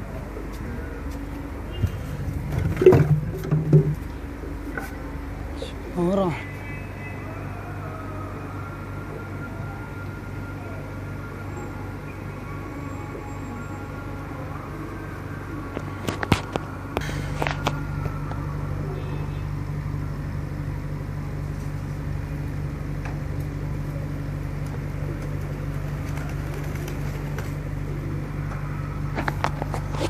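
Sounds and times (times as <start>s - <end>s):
low mechanical hum: 0.0s - 30.0s
pigeons cooing: 23.4s - 29.0s.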